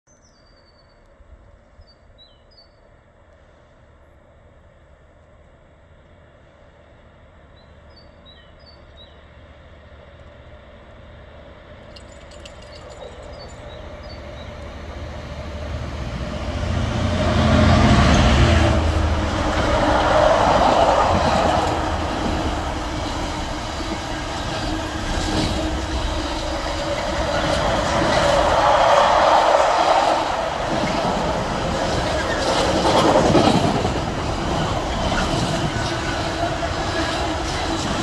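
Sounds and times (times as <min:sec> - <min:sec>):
diesel locomotive engine: 0:02.8 - 0:38.0
train wagons rolling: 0:11.6 - 0:38.0
wheels clicking over rail joints: 0:11.8 - 0:14.2.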